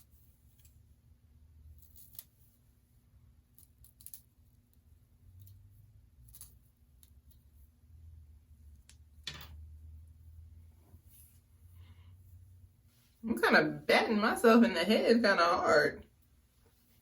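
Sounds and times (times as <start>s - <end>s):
hands rustling a wig: 15.6s - 17.0s.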